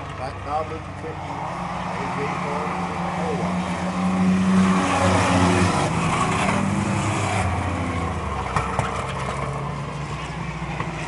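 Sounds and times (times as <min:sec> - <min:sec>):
racing truck engines: 0:00.0 - 0:11.0.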